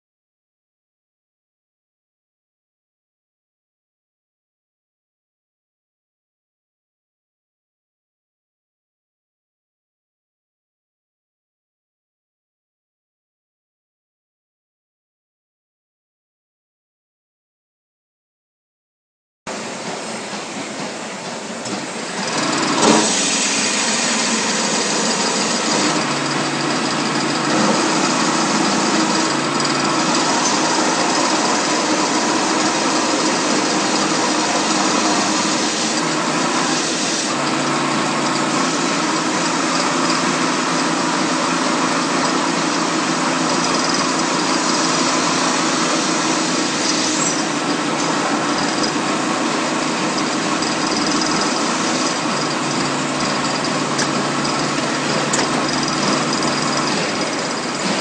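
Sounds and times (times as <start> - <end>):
lathe machine running: 19.5 - 58.0.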